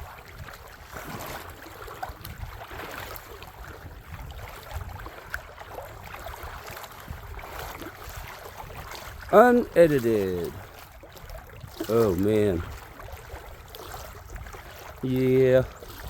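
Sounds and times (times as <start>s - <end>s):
wind rumble on microphone: 0.0s - 16.0s
footsteps crunching on creek bank: 4.4s - 16.0s.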